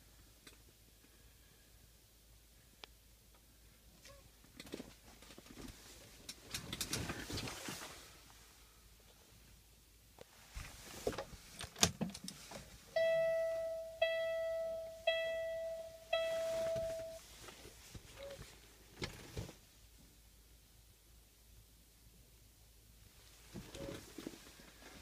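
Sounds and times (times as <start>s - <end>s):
electronic chime: 13.0s - 17.2s.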